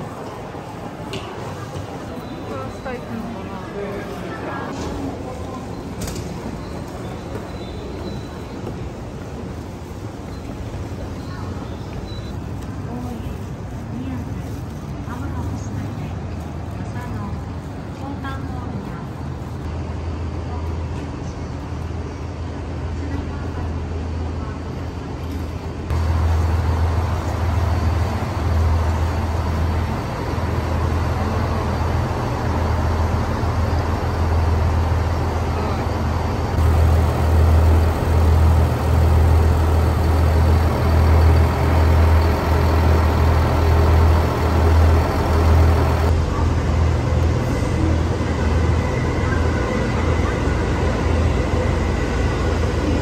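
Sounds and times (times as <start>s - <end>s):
low rumble of waiting trains: 0.0s - 53.0s
station noise: 25.9s - 53.0s.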